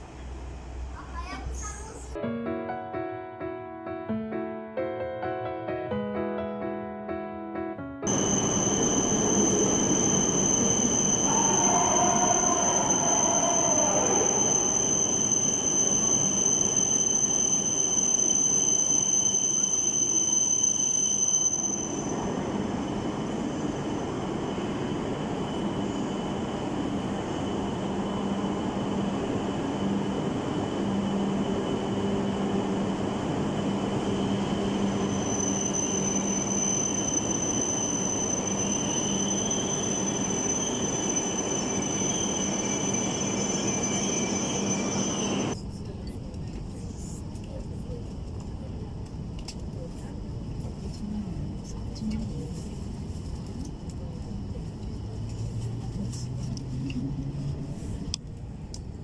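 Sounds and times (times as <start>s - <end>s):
high steady whine: 8.1s - 18.3s
train rail rumble: 8.1s - 20.3s, 21.5s - 59.0s
squeal gliding down in pitch: 8.1s - 22.4s, 34.6s - 45.6s.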